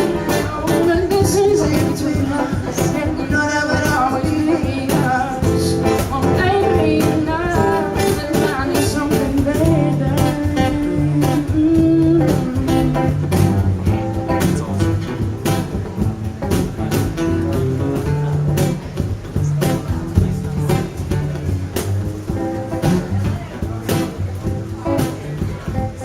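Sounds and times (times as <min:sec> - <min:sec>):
person singing with vibrato: 0:00.0 - 0:13.5
cajon beat: 0:00.0 - 0:26.0
strummed acoustic guitar: 0:00.0 - 0:26.0.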